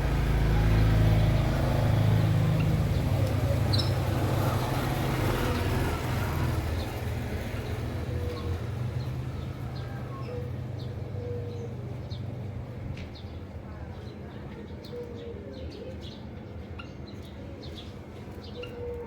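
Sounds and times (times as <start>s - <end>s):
motor vehicle rumble: 0.0s - 14.2s
cage birds chirping: 0.0s - 19.0s.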